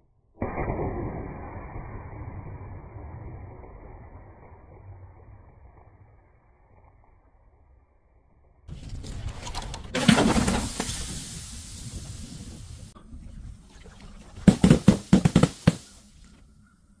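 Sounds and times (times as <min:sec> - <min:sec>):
crackling hissing crush: 0:10.0 - 0:13.0, 0:14.4 - 0:16.4
sharp cracks: 0:14.4 - 0:16.4.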